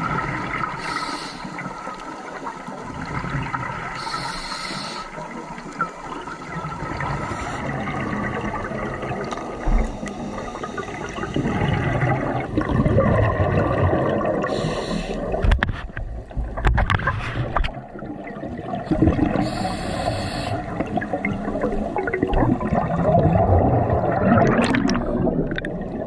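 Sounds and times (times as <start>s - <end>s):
bubbles gurgling underwater: 0.0s - 1.0s, 1.6s - 4.2s, 5.1s - 26.0s
regulator inhale hiss: 0.7s - 2.1s, 4.0s - 6.0s, 7.0s - 7.7s, 9.7s - 11.6s, 14.4s - 15.5s, 19.3s - 20.8s
rising bubbles crackling: 1.6s - 4.1s, 5.2s - 19.6s, 20.6s - 26.0s.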